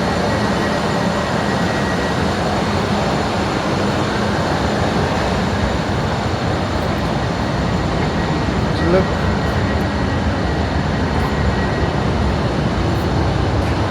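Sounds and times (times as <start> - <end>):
faint steady whine: 0.0 - 13.9
train wheels rumbling on rail: 0.0 - 13.9.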